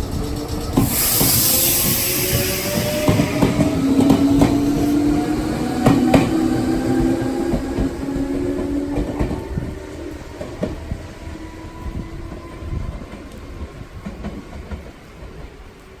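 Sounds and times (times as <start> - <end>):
train wheels knocking over rail joints: 0.1 - 5.0
electric train motor tone: 0.8 - 8.0.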